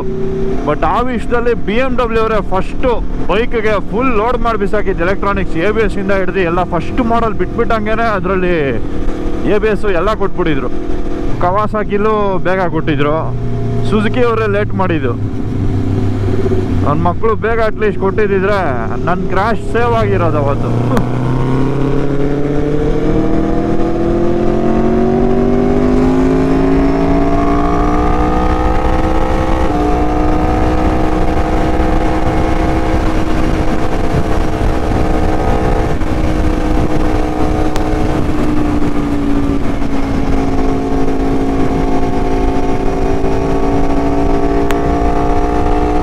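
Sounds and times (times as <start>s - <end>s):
motorcycle engine pulling hard: 0.0s - 46.0s
wind noise: 18.8s - 46.0s.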